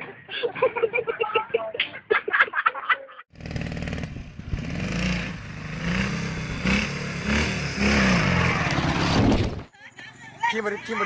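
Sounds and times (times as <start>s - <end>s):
motorcycle engine revving: 3.3s - 9.7s.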